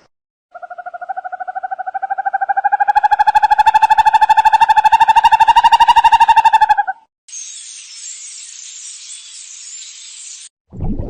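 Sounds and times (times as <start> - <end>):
animal trilling call: 0.6 - 7.0.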